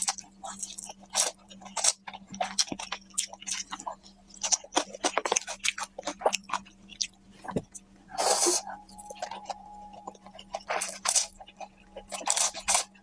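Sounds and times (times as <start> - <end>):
faint steady hum: 0.0 - 13.0
noodle slurping and chewing: 10.1 - 13.0.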